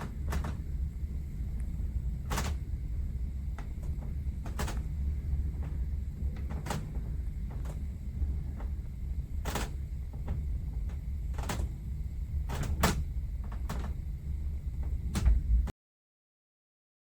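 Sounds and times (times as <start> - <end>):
cabin creaking and knocking: 0.0 - 15.7
steady low rumble: 0.0 - 15.7.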